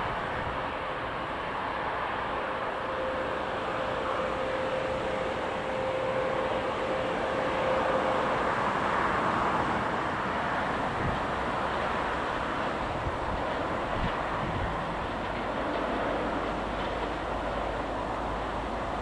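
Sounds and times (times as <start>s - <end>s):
thin steady tone: 2.3s - 12.7s.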